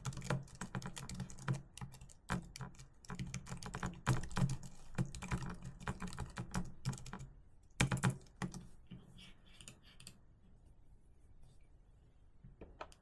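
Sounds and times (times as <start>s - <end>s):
typing on a keyboard: 0.0s - 8.7s.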